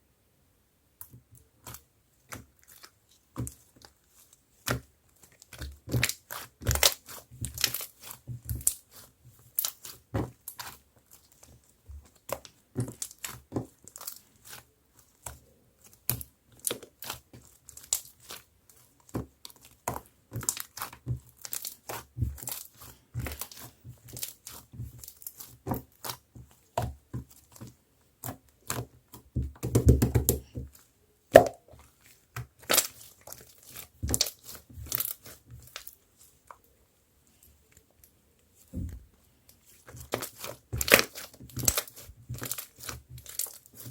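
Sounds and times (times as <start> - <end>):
slime crackling and popping: 5.4 - 14.6, 19.3 - 28.9, 31.3 - 31.7, 32.4 - 36.0, 39.8 - 43.9.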